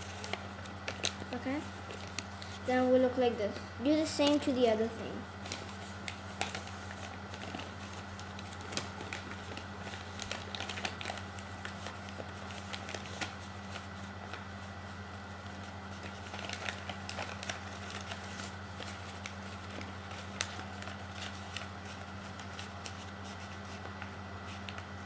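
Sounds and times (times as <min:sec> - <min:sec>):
paper being folded and creased: 0:00.0 - 0:02.7, 0:05.4 - 0:14.7, 0:15.4 - 0:24.9
steady low hum: 0:00.0 - 0:25.0.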